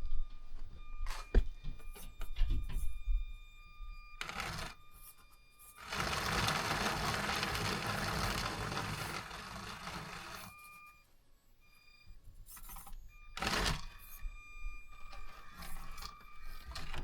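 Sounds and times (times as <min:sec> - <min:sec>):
faint whine: 0:00.0 - 0:17.0
electric motor and gears whirring: 0:04.1 - 0:11.0, 0:12.4 - 0:17.0.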